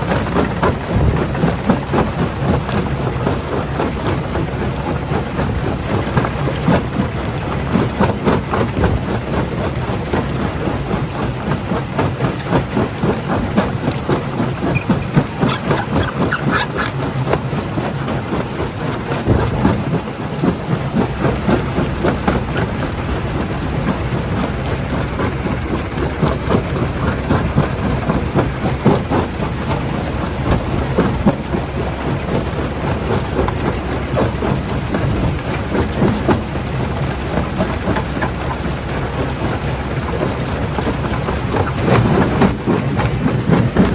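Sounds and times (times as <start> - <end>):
engine and motor hum: 0.0 - 43.9.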